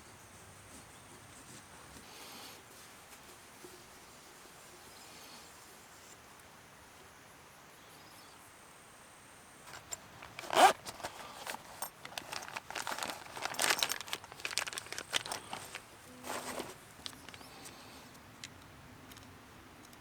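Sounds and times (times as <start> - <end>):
crinkly material rustling: 9.7 - 17.8.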